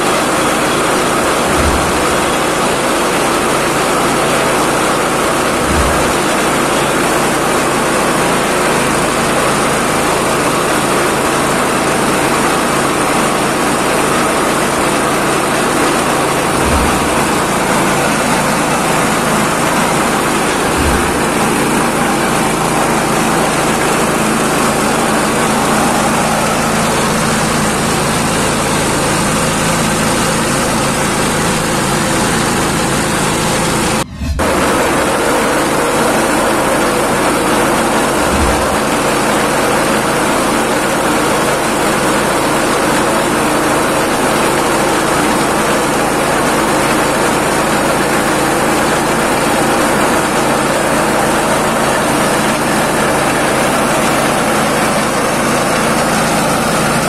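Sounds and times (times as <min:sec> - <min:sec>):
pulping machine running: 0:00.0 - 0:57.0
brief low thuds: 0:01.4 - 0:02.8, 0:05.5 - 0:06.6, 0:16.5 - 0:22.2, 0:38.2 - 0:38.9.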